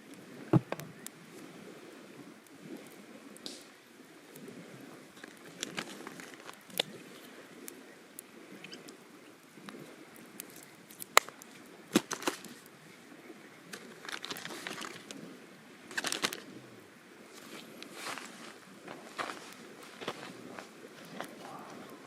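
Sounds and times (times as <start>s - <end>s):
crinkling rustling handling noise: 5.2s - 6.8s, 11.9s - 12.6s, 13.7s - 15.2s, 15.9s - 16.5s, 17.3s - 22.0s.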